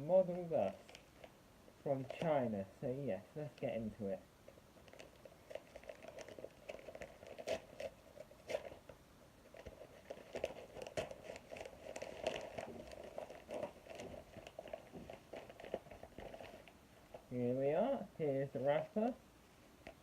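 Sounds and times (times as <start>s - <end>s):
packaging crinkling and tearing: 0.3s - 1.4s, 4.5s - 17.3s.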